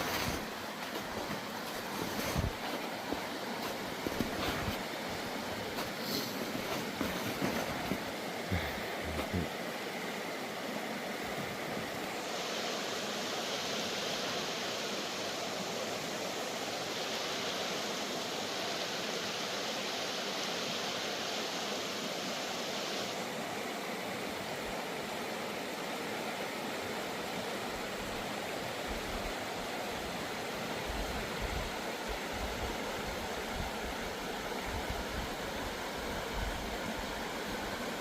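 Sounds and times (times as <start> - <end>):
water rushing over rocks: 0.0 - 24.7.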